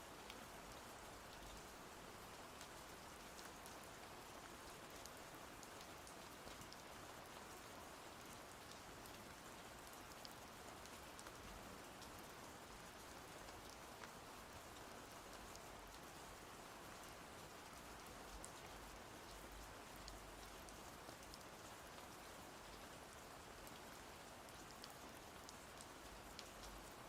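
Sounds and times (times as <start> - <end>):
faint rain falling: 0.0 - 27.0
raindrops ticking: 24.6 - 26.8.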